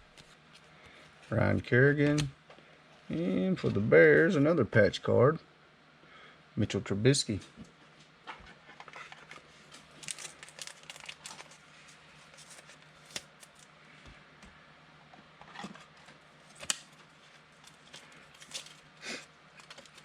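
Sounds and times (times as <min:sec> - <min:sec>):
card packaging crinkling: 0:09.1 - 0:13.7, 0:16.4 - 0:18.9, 0:19.5 - 0:20.0.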